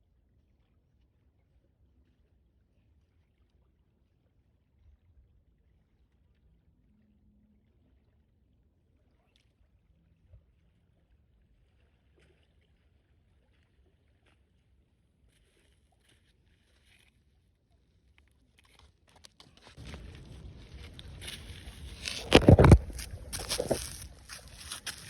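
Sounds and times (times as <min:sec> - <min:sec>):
crackling clicks: 0:18.6 - 0:25.0
faint low rumble: 0:19.6 - 0:25.0.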